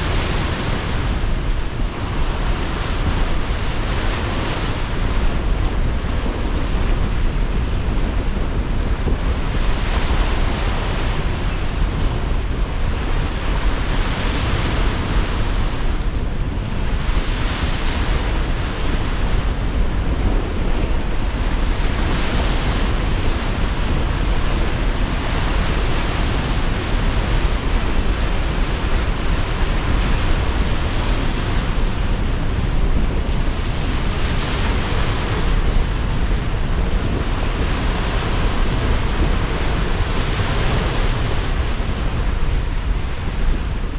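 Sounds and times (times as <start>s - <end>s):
waves washing ashore: 0.0s - 43.9s
wind rumbling on microphone: 0.0s - 43.9s.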